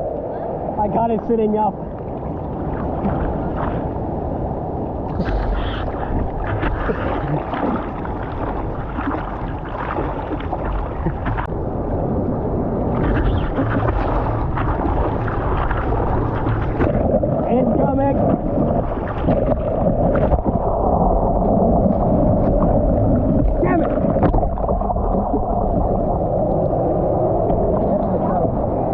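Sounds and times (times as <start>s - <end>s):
seawater sloshing and splashing: 2.0s - 4.2s, 5.0s - 11.6s, 12.8s - 28.5s.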